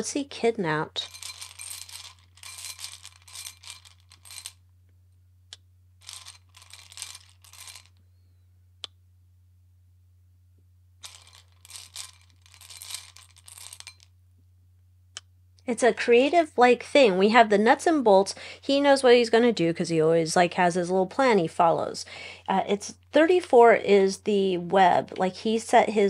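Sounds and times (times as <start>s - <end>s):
cards rustling and riffling: 1.1s - 4.6s, 6.0s - 8.0s, 11.0s - 14.1s.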